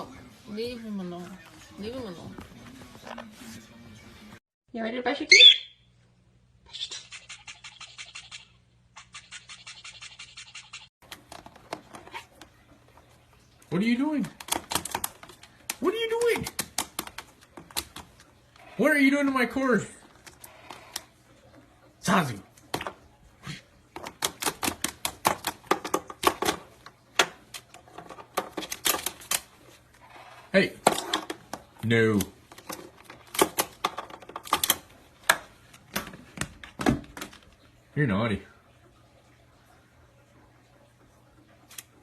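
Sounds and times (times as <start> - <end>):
clicks and scratches: 14.3 - 18.8, 24.0 - 37.6.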